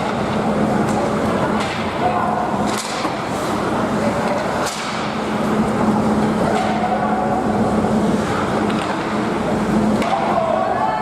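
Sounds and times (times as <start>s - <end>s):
steady low hum: 0.0s - 11.0s
hockey sticks clacking on puck: 2.6s - 3.2s, 8.6s - 9.2s, 10.0s - 10.4s.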